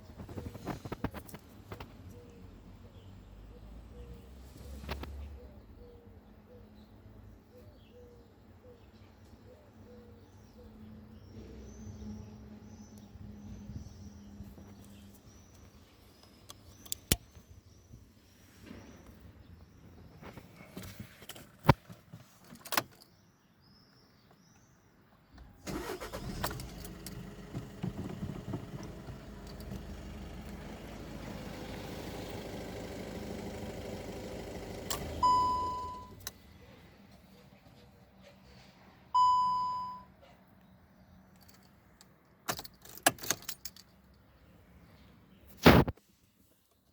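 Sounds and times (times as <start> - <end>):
car engine running: 25.7 - 36.2
dashboard warning beeps: 35.2 - 36.2, 39.2 - 40.2.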